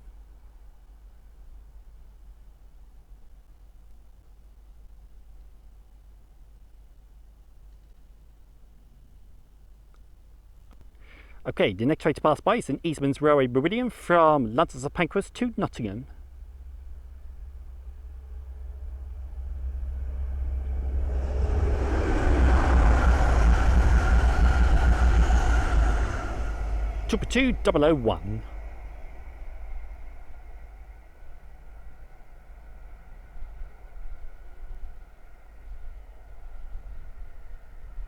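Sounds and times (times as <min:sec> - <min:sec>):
faint low rumble: 0:00.0 - 0:38.0
diesel train passing at speed: 0:09.2 - 0:38.0.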